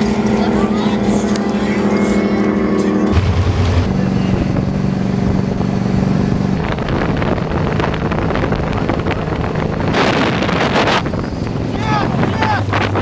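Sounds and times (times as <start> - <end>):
motorboat engine running: 0.0 - 13.0
wind on microphone: 3.1 - 13.0.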